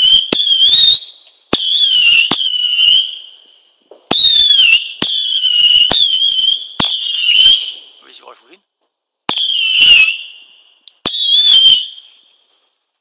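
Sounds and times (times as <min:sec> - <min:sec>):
whistling fireworks cracking: 0:00.0 - 0:08.6, 0:09.2 - 0:12.6.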